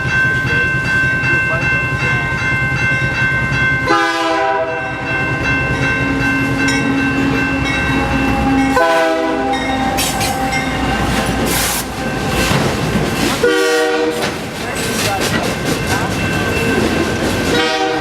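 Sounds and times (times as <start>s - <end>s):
passing train rumble: 0.0s - 18.0s
locomotive horn blasts: 3.9s - 5.2s, 7.5s - 12.0s, 13.4s - 14.2s, 17.5s - 18.0s.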